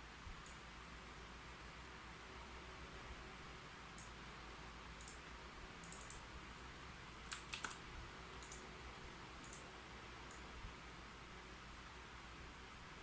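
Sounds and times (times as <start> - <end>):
faint steady hiss: 0.0 - 13.0
computer keyboard typing: 5.8 - 6.2, 7.3 - 7.8, 8.4 - 8.6, 9.4 - 9.7.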